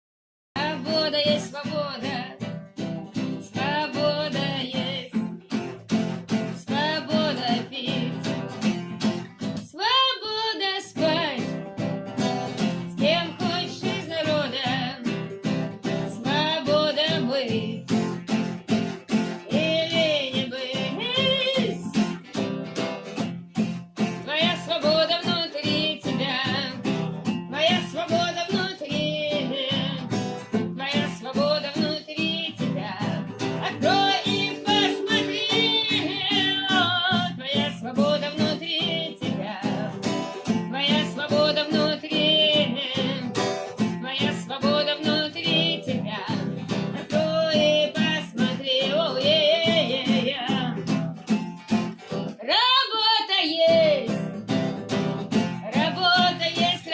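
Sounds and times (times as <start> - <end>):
person singing: 0.6 - 2.5, 3.2 - 5.4, 6.5 - 8.6, 9.6 - 11.7, 12.7 - 15.2, 15.9 - 18.0, 19.4 - 22.0, 24.2 - 50.9, 55.5 - 56.9
acoustic guitar music: 0.6 - 56.9.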